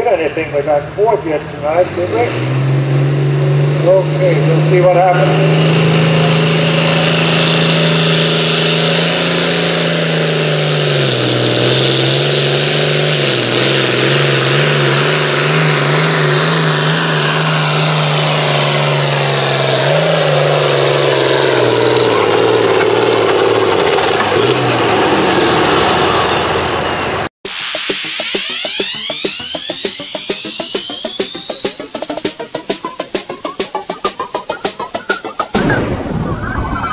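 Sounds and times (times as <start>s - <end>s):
tractor engine running under load: 2.6s - 27.3s
high whine: 3.2s - 36.9s.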